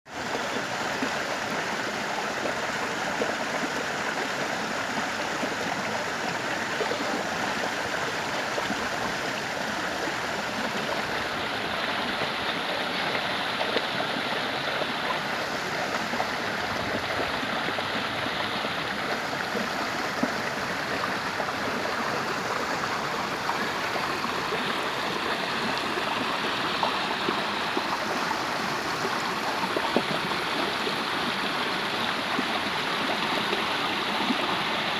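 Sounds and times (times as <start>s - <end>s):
stream water flowing: 0.1s - 34.9s.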